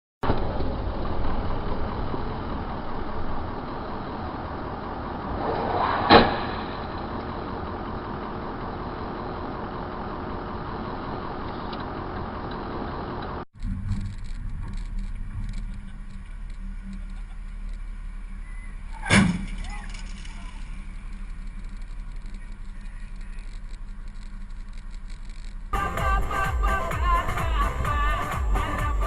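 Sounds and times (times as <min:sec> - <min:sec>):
vehicle road and engine noise: 0:00.2 - 0:29.0
vehicle collision crash: 0:05.1 - 0:08.6, 0:18.9 - 0:22.4.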